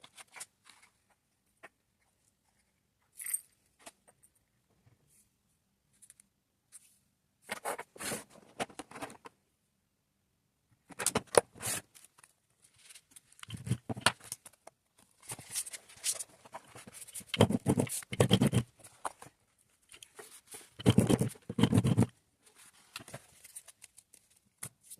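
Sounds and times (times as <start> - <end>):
scratchy rustling: 15.2 - 19.3, 20.1 - 24.0.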